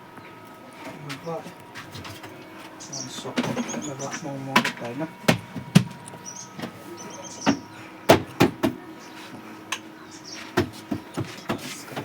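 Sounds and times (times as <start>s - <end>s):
washing machine clicks and knocks: 4.6s - 6.0s, 7.5s - 8.8s.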